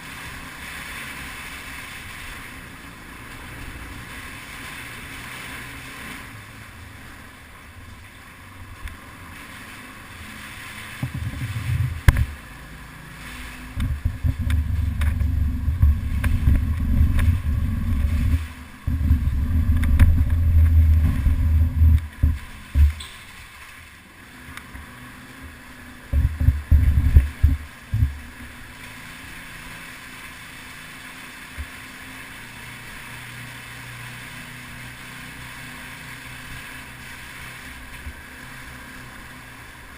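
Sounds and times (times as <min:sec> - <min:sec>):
dirt bike engine running: 0:13.6 - 0:23.2, 0:24.4 - 0:28.6.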